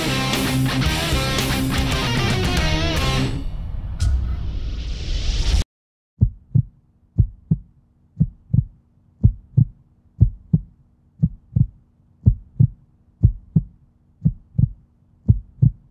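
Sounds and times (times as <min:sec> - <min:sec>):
rock music: 0:00.0 - 0:03.8
heartbeat thumps: 0:06.2 - 0:15.9.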